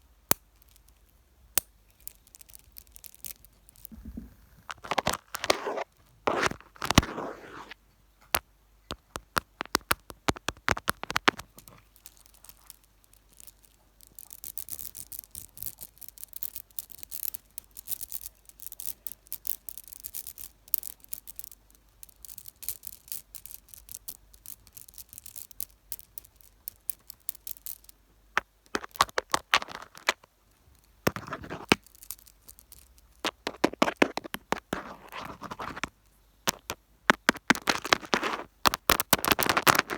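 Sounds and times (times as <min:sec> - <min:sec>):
fine hissy scratching: 0:03.4 - 0:07.8.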